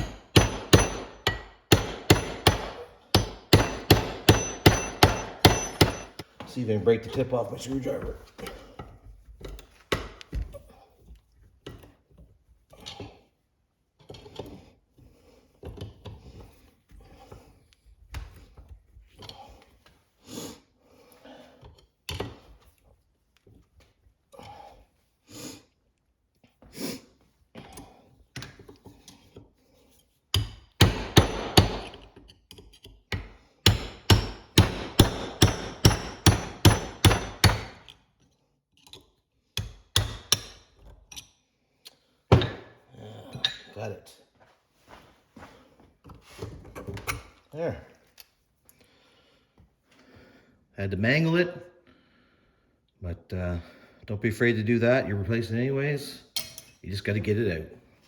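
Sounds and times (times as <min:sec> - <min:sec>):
hammer striking screwdriver: 0:00.0 - 0:06.3.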